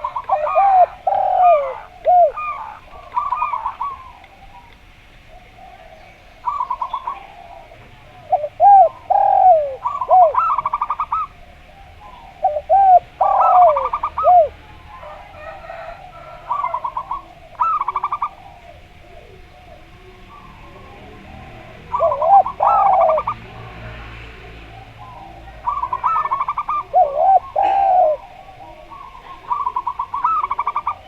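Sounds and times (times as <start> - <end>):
deep falling dove coos: 0.0 - 31.0
doves cooing: 0.0 - 31.0.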